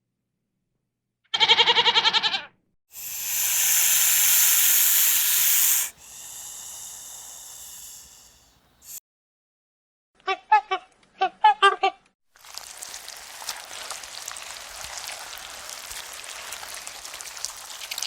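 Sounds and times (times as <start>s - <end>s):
goat bleating: 1.4s - 2.5s
loud hiss: 3.0s - 9.0s.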